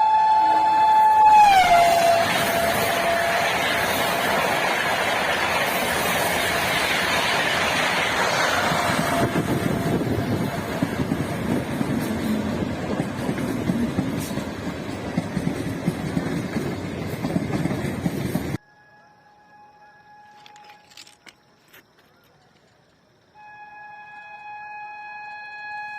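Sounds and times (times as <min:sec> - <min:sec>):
train horn: 0:00.0 - 0:04.7, 0:08.2 - 0:12.7, 0:18.6 - 0:20.9, 0:23.4 - 0:25.9
train rushing past: 0:00.0 - 0:18.6.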